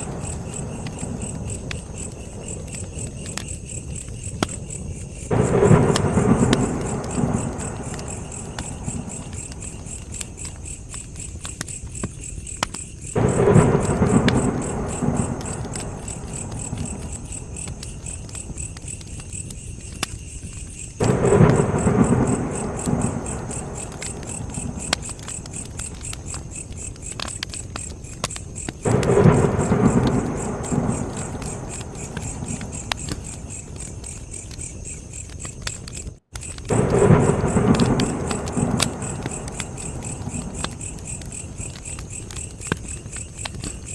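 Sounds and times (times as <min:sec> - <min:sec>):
campfire crackling and popping: 0:00.0 - 0:43.9
crickets chirping: 0:00.0 - 0:43.9
low rumbling swells: 0:13.2 - 0:18.1, 0:21.0 - 0:25.8, 0:36.7 - 0:41.7.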